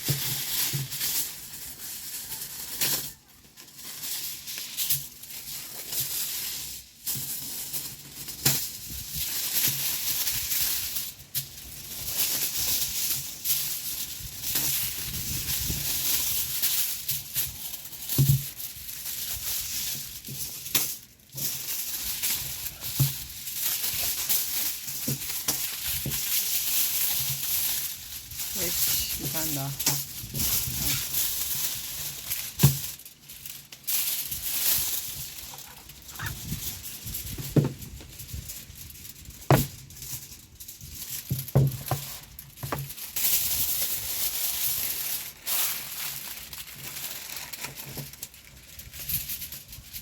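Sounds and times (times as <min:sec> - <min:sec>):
steady rain patter: 0:02.3 - 0:50.0
scattered clicks and knocks: 0:37.3 - 0:38.2
low thud: 0:37.4 - 0:38.1.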